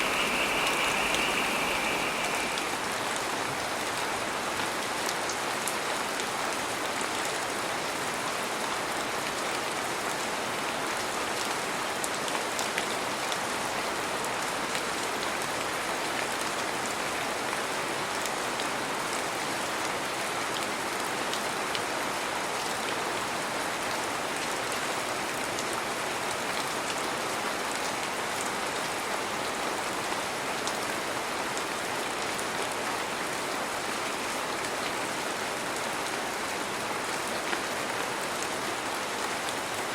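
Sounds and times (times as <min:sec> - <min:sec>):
heavy rain falling: 0:00.0 - 0:07.7.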